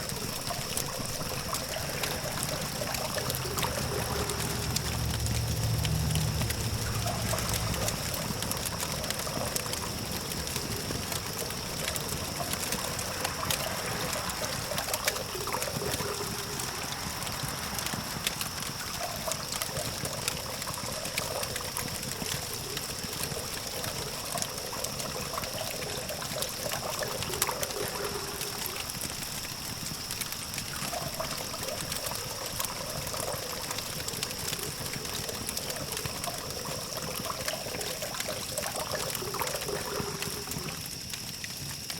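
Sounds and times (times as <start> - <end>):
distant city traffic hum: 0.0 - 29.6
campfire crackling and popping: 0.0 - 41.9
steady hiss: 0.0 - 41.9.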